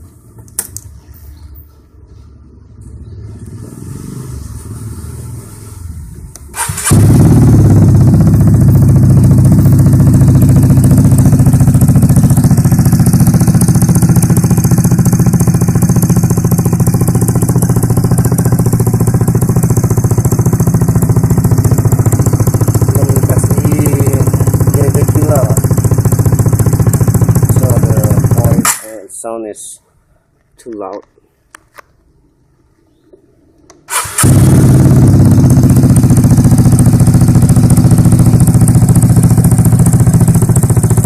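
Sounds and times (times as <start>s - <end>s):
scooter engine idling: 5.9s - 28.7s, 33.9s - 41.0s.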